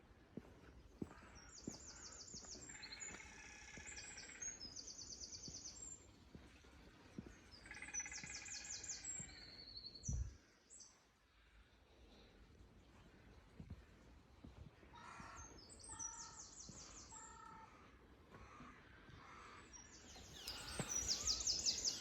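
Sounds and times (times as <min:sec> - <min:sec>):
faint footsteps: 0:00.3 - 0:04.0, 0:05.4 - 0:07.7, 0:12.9 - 0:15.6, 0:20.3 - 0:22.0
songbirds trilling: 0:18.4 - 0:22.0.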